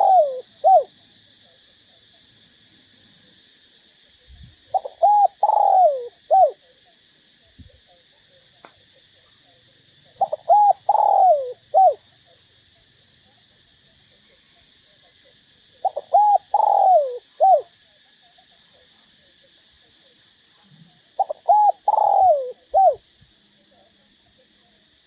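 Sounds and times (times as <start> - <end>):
dove cooing: 0.0 - 0.9, 4.7 - 6.7, 10.1 - 12.0, 15.8 - 17.7, 21.1 - 23.0.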